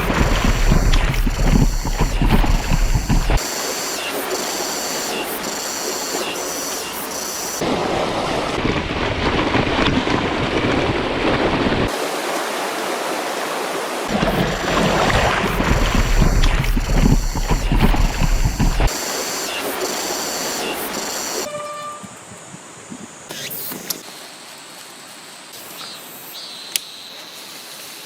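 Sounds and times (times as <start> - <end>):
wind on microphone: 0.0 - 3.4, 14.1 - 18.9
waterfall rushing: 0.0 - 9.4, 10.3 - 19.9.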